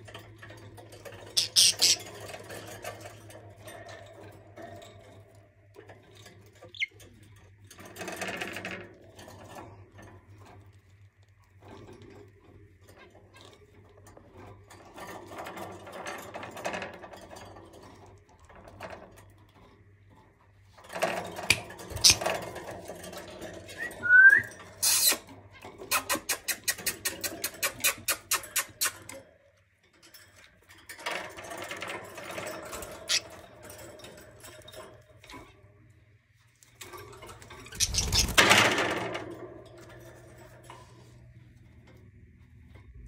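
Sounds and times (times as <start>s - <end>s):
budgerigars chirping and chattering: 1.4s - 2.1s, 22.0s - 22.3s, 37.8s - 38.4s.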